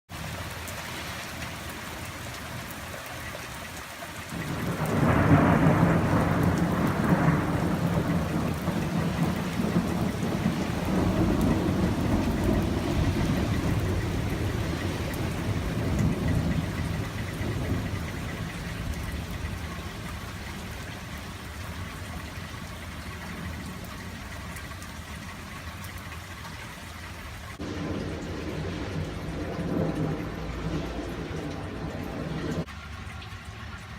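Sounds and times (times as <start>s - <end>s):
steady rain: 0.1s - 33.9s
rolling thunder: 4.3s - 21.1s, 27.6s - 32.7s.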